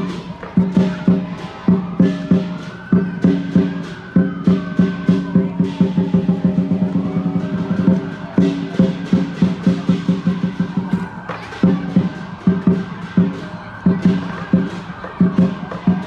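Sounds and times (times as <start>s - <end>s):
large drum beating fast: 0.0s - 16.0s.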